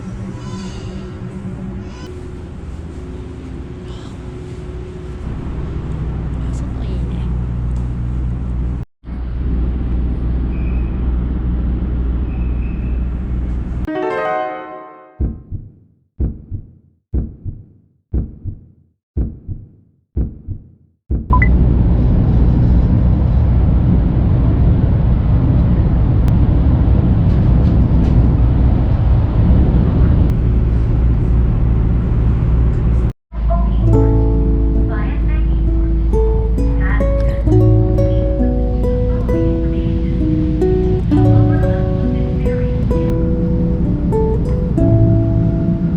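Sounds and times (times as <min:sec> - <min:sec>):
road noise rushing: 0:00.0 - 0:13.9, 0:21.6 - 0:45.9
vehicle engine droning: 0:00.0 - 0:13.9, 0:21.4 - 0:45.9
rushing noise: 0:35.6 - 0:45.9.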